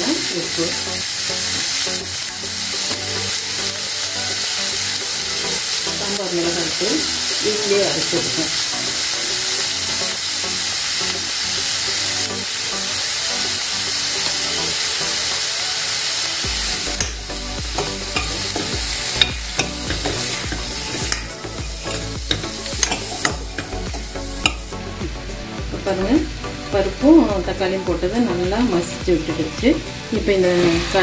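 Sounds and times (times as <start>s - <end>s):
radish sizzling in hot oil: 0.0s - 31.0s
spoon clicking against metal pot: 17.8s - 21.4s, 22.3s - 24.7s.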